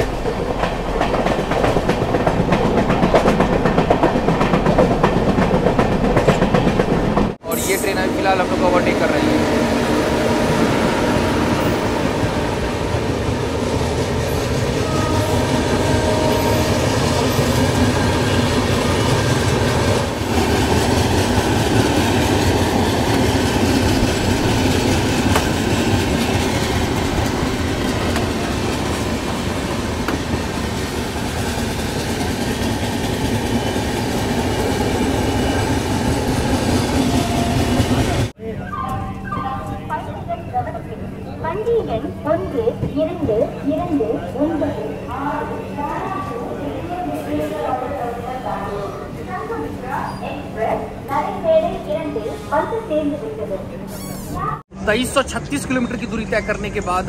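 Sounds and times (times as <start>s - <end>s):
train wheels rumbling on rails: 0.0s - 38.4s.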